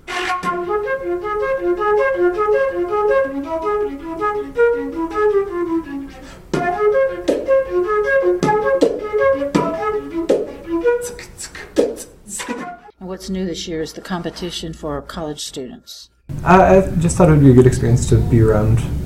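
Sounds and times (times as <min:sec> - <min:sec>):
flute playing quick notes: 0:00.0 - 0:06.0, 0:06.6 - 0:11.3, 0:12.0 - 0:13.0
beatboxed percussive hits: 0:06.2 - 0:12.8.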